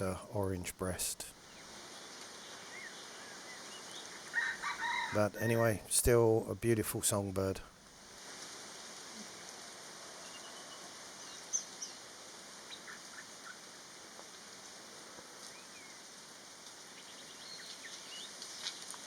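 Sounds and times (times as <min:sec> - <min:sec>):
faint forest hiss: 0:00.0 - 0:19.0
birds chirping and whistling: 0:02.5 - 0:04.7, 0:17.0 - 0:18.4.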